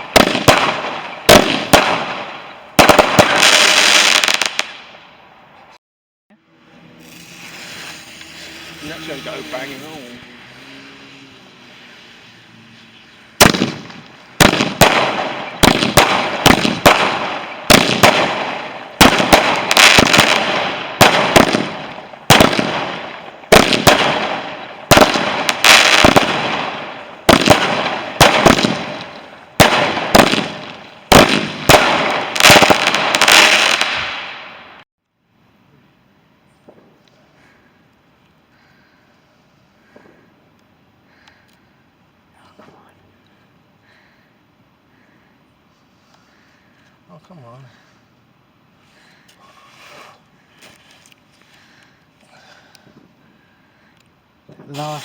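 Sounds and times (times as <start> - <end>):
firework bangs: 0.0 - 5.1, 7.0 - 11.1, 11.7 - 34.8.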